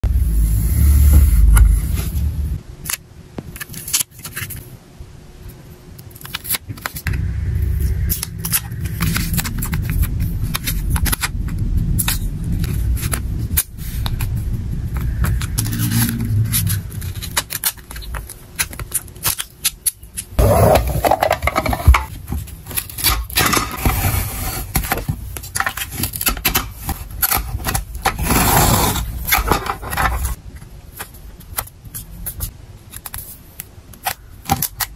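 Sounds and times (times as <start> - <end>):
heavy low thumps: 0.0 - 2.6, 7.1 - 17.2.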